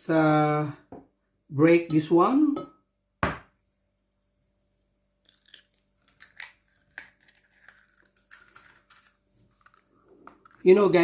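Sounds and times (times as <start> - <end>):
eggshell crackling: 5.2 - 11.0.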